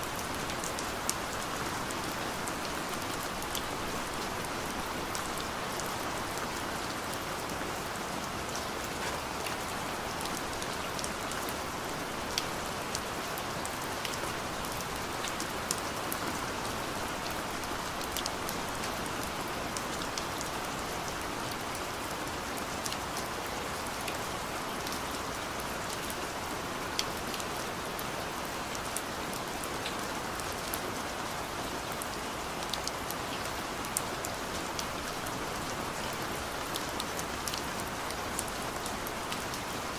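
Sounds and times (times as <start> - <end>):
rain on a car roof: 0.0 - 39.9.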